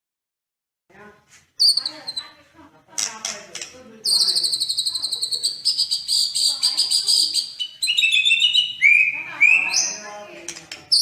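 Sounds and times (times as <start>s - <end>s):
songbird buzzy trill: 4.1s - 10.1s
whistled bird notes: 4.1s - 10.1s.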